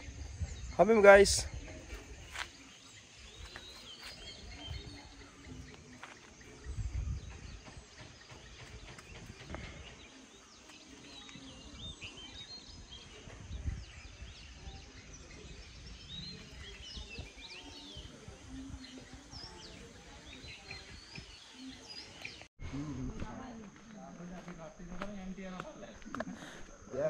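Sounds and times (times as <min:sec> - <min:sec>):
birds chirping: 0:00.0 - 0:22.5
low rumble on microphone: 0:06.4 - 0:10.1, 0:11.6 - 0:21.4.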